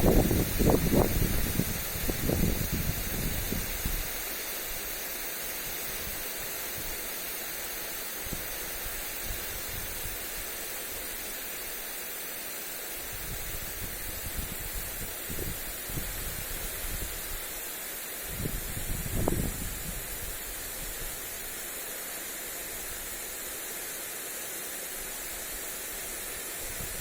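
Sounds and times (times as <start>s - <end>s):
wind buffeting microphone: 0.0s - 4.1s, 18.3s - 20.9s
sprinkler spray hissing on grass: 0.0s - 27.0s.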